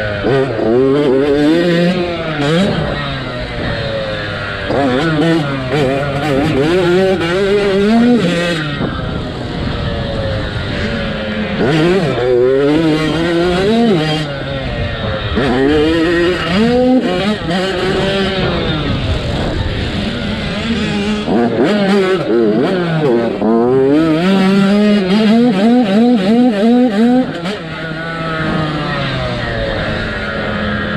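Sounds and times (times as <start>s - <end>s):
motorbike engine revving: 0.0s - 30.9s.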